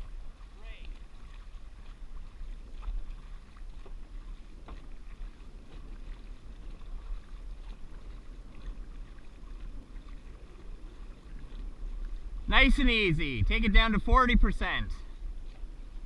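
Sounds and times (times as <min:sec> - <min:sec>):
paddles splashing in water: 0:00.0 - 0:16.0
wind rumble on microphone: 0:00.0 - 0:16.0.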